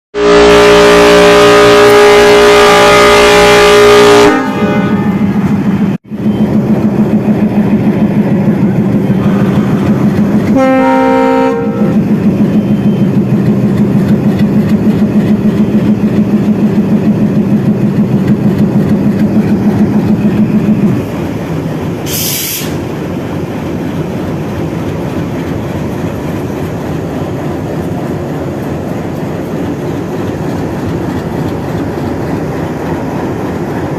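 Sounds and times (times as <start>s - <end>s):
locomotive horn: 0.2s - 5.8s, 9.0s - 12.1s
train rolling rumble: 0.2s - 33.9s
diesel engine chugging: 5.8s - 33.9s
brief hiss: 22.1s - 22.8s.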